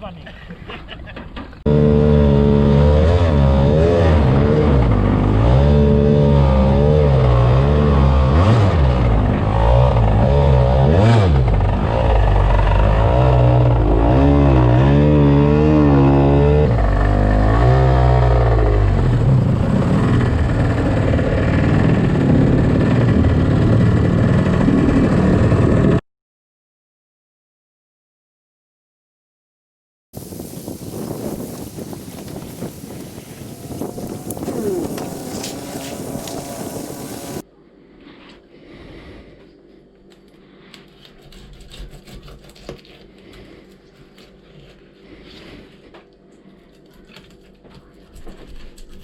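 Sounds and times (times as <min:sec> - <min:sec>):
two-stroke jet boat engine: 0:01.6 - 0:26.0, 0:30.2 - 0:37.4.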